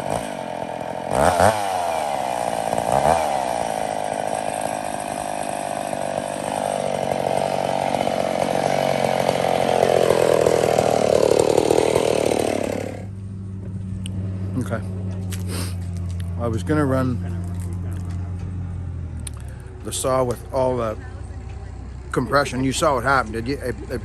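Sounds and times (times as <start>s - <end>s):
chainsaw running at high revs: 0.0s - 13.2s.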